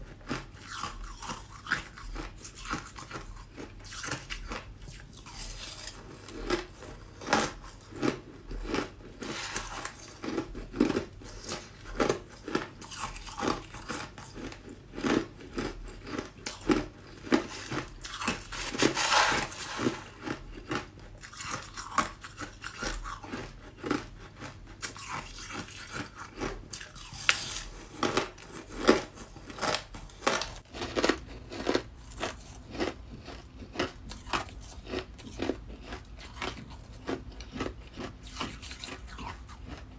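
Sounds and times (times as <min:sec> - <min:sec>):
person chewing ice: 0:00.0 - 0:39.9.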